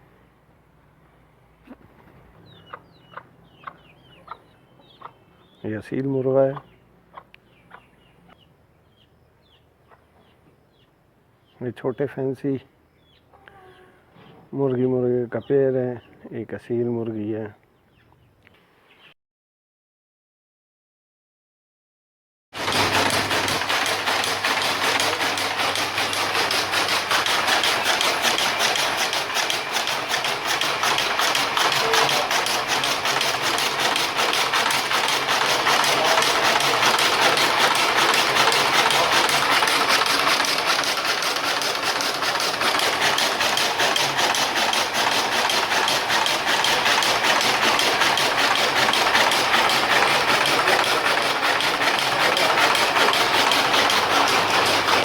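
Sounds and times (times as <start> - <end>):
machine engine clattering: 22.6 - 55.0.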